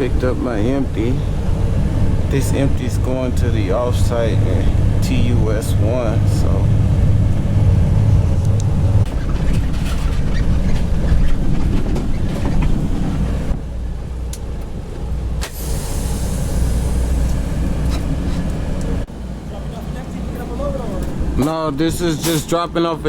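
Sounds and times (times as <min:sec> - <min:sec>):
truck rig rattling and knocking: 0:00.0 - 0:15.4
diesel truck engine rumbling: 0:00.0 - 0:23.0
air hiss: 0:15.4 - 0:17.6.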